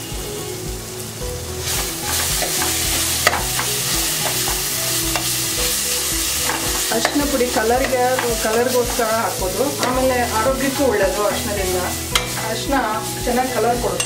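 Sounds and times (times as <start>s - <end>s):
masala sizzling in a pan: 0.0s - 14.0s
steel spoon scraping a pan: 1.6s - 14.0s
spoon clinking against a pan: 2.4s - 5.3s, 6.4s - 12.6s.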